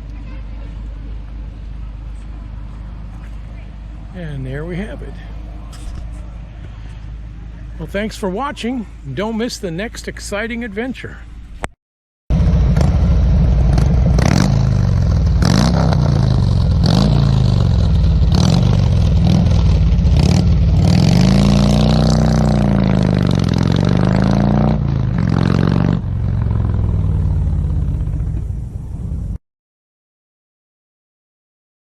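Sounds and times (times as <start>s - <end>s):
vehicle engine revving: 12.3s - 29.0s.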